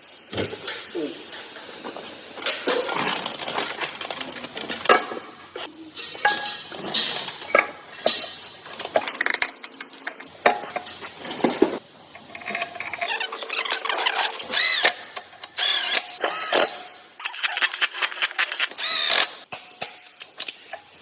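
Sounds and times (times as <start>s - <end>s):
metal tools clinking and clattering: 1.3s - 21.0s.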